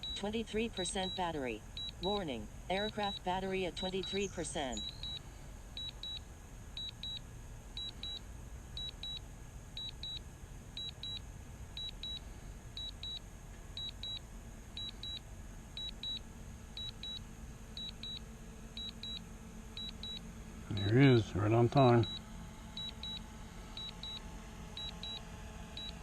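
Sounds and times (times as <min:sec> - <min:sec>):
high double beeps: 0:00.0 - 0:05.2, 0:19.8 - 0:21.0, 0:21.8 - 0:22.2
low steady rumble: 0:00.0 - 0:26.0.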